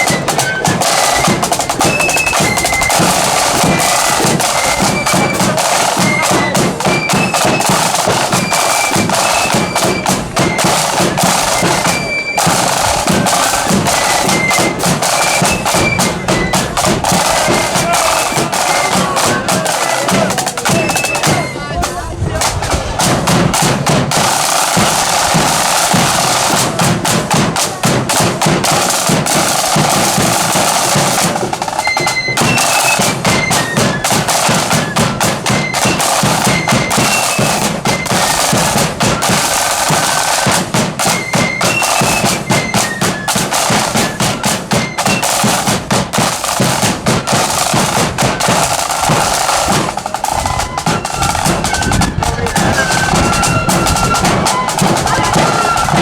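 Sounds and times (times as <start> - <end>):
high flute melody: 0.0 - 56.0
snare drums rattling: 0.0 - 56.0
bass drum beating: 12.6 - 31.6.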